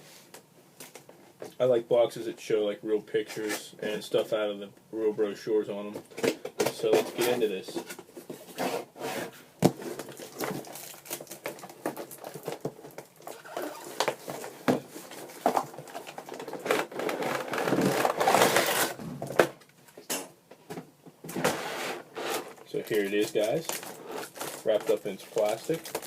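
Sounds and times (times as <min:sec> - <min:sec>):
packaging scraping and rustling: 0:06.2 - 0:20.0, 0:21.3 - 0:26.0.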